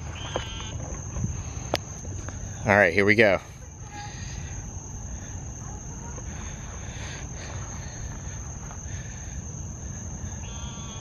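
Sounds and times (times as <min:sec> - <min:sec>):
crickets droning: 0:00.0 - 0:11.0.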